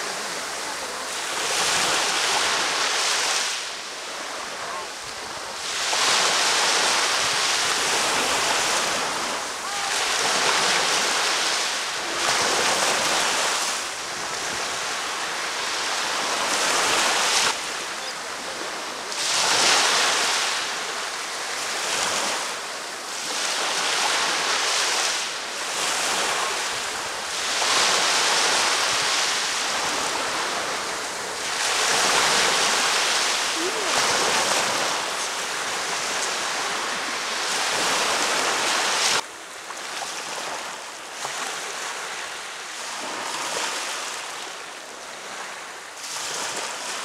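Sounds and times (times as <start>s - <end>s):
ocean waves breaking: 0.0s - 47.0s.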